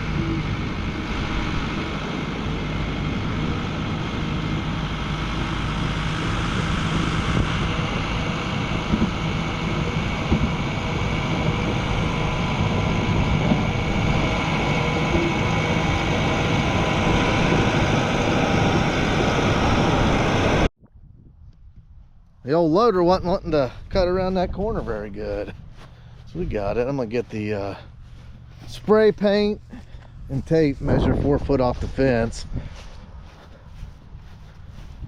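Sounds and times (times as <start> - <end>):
diesel engine running: 0.0 - 20.7, 23.5 - 35.0.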